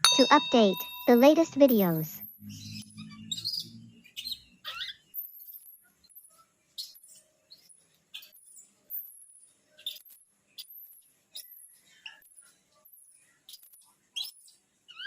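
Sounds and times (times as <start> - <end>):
small pet animal squeaky chirps: 2.7 - 5.6.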